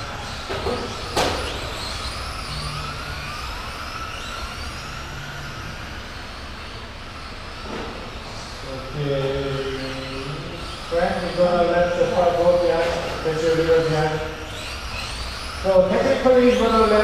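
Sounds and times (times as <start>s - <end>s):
rc truck motors whining: 0.0s - 17.0s.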